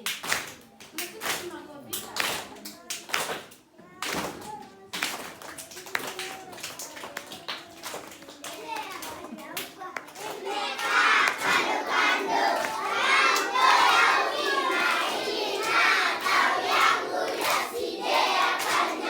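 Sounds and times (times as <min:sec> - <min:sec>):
children shouting: 0:10.1 - 0:19.0.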